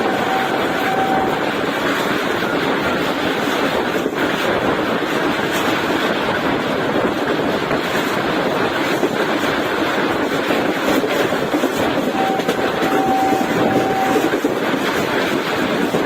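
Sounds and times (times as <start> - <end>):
steady high tone: 0.0 - 1.6, 12.0 - 14.4
train coach rolling and rattling: 0.0 - 16.0.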